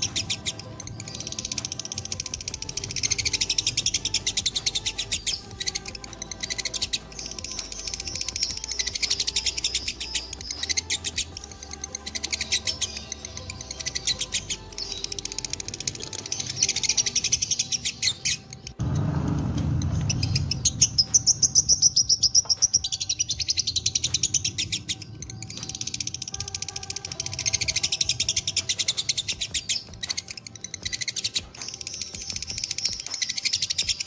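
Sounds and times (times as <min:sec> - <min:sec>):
lovebirds chattering trills: 0:00.0 - 0:18.8, 0:19.8 - 0:34.0
low rumbling noise: 0:18.8 - 0:22.7.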